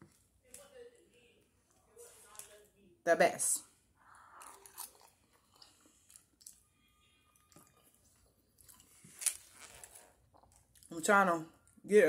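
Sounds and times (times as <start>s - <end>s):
person chewing food: 4.0s - 10.9s.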